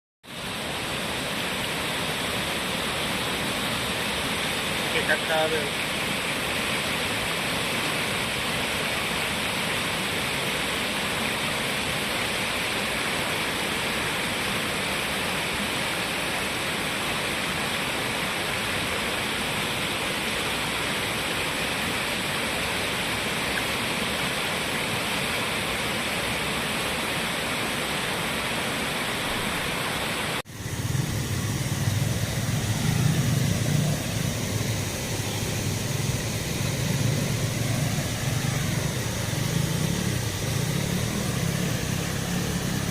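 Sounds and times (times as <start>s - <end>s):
river water rushing over rocks: 0.3s - 42.9s
low rumble: 30.5s - 42.9s.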